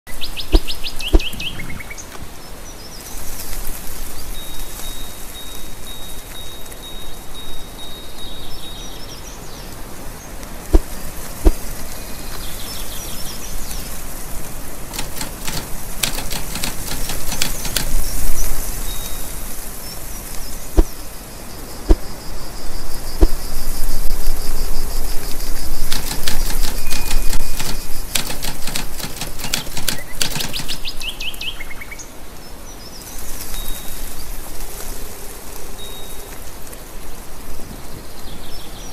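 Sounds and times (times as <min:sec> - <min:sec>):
birds chirping: 0:00.1 - 0:03.1, 0:08.4 - 0:23.6, 0:25.6 - 0:32.1
steady high hiss: 0:00.1 - 0:38.9
sharp clicks: 0:10.7 - 0:12.4, 0:13.6 - 0:18.6, 0:23.2 - 0:23.4, 0:25.8 - 0:31.0
short whistled calls: 0:25.9 - 0:28.4.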